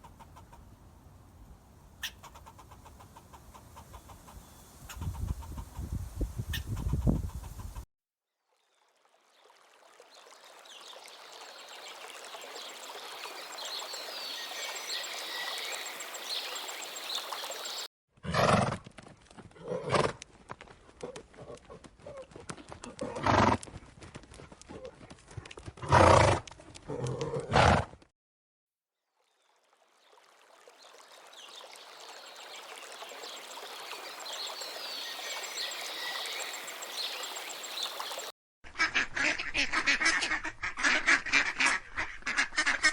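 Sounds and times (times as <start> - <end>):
outdoor background noise: 0.0 - 7.8, 9.0 - 28.1.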